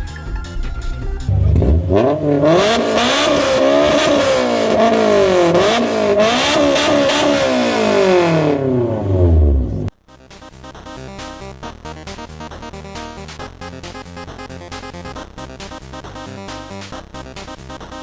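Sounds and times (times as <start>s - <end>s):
car engine revving: 1.3s - 9.9s.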